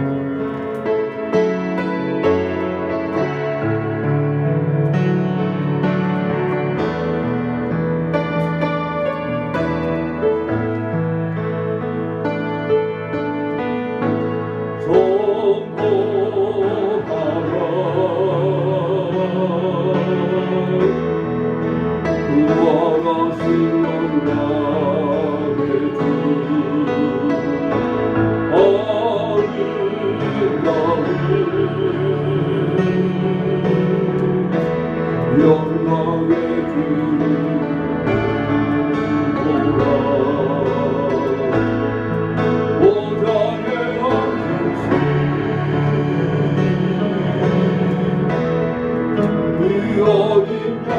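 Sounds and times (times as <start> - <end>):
instrumental accompaniment: 0.0 - 50.9
keyboard chords: 0.0 - 50.9
voices singing a hymn: 14.8 - 50.9.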